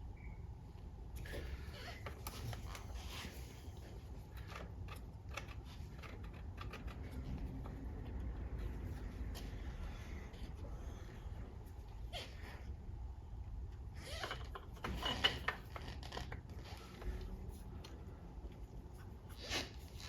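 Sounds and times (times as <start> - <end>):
steady low hum: 0.0 - 20.0
small parts clicking and tapping: 4.3 - 8.7.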